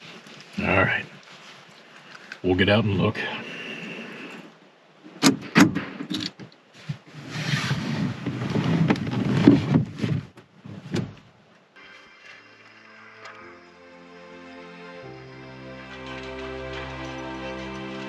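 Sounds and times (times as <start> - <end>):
rustling and movement: 0.0 - 2.6, 4.2 - 13.5.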